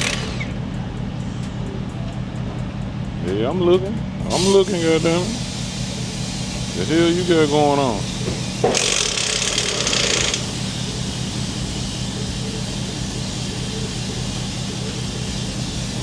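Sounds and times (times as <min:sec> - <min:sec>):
impact wrench hammering: 0:00.0 - 0:00.6, 0:06.8 - 0:11.1.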